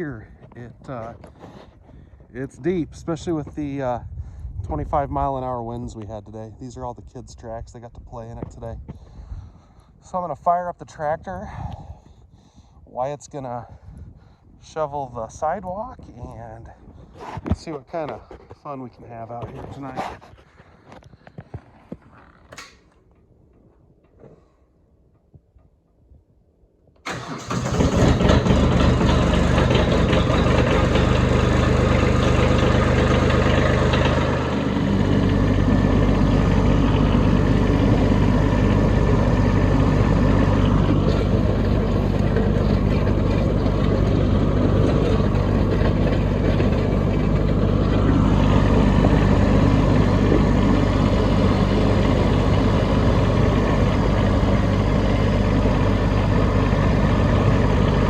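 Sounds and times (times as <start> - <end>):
diesel engine cranking: 27.0 - 58.0
tractor engine running: 27.0 - 58.0.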